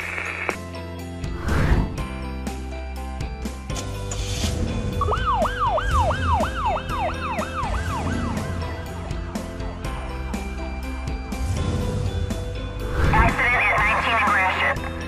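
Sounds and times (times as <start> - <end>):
background music: 0.0 - 15.0
emergency siren yelping: 5.0 - 9.2.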